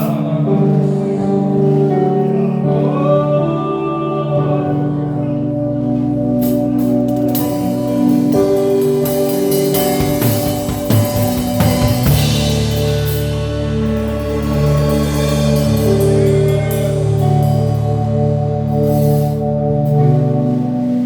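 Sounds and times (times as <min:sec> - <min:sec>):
singing: 0:00.0 - 0:06.6
band playing worship music: 0:00.0 - 0:21.0
drum kit cymbals and hits: 0:06.4 - 0:19.5.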